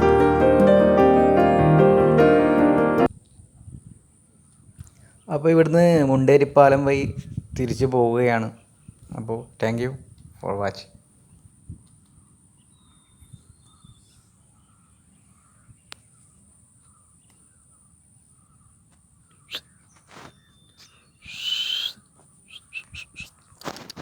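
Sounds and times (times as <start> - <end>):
harsh bird call: 21.2 - 23.3.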